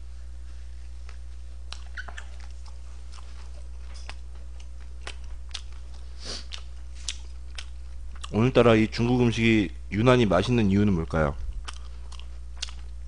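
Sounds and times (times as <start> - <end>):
person chewing food: 0.8 - 8.6, 11.4 - 13.0.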